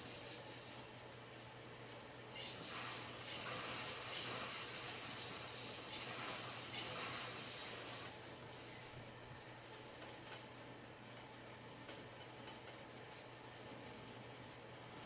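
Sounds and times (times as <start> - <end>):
spray cleaner hissing: 2.4 - 10.2.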